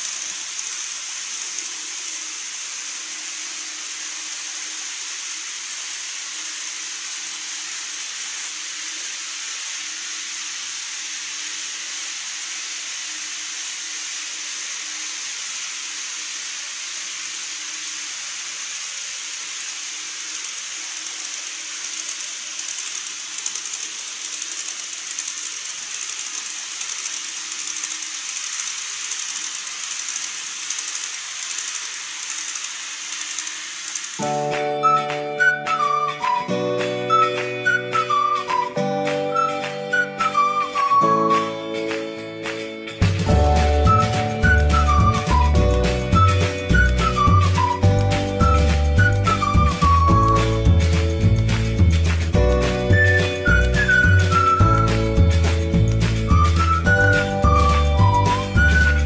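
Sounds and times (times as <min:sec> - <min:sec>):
wheels rattling over rails: 0:00.0 - 0:10.7, 0:14.6 - 0:36.5, 0:43.0 - 0:59.0
model train motors whirring: 0:00.0 - 0:36.4, 0:43.2 - 0:59.0
music: 0:34.2 - 0:59.0.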